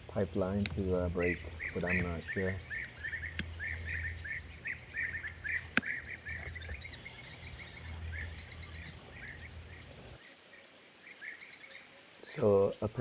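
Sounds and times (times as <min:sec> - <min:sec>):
bird chirping: 0:00.0 - 0:10.2
sharp click: 0:00.0 - 0:10.2.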